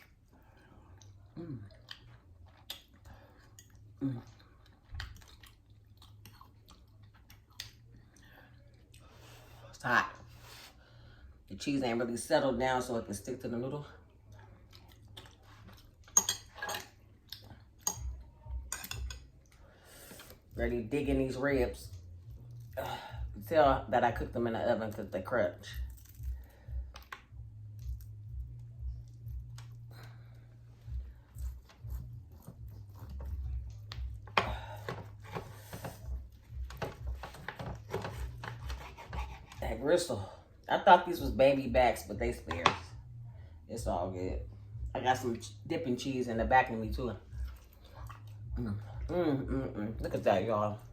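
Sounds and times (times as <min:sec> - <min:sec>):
soft chewing: 0:00.0 - 0:09.6, 0:14.0 - 0:20.5, 0:21.9 - 0:22.8, 0:25.7 - 0:39.6, 0:47.2 - 0:49.1.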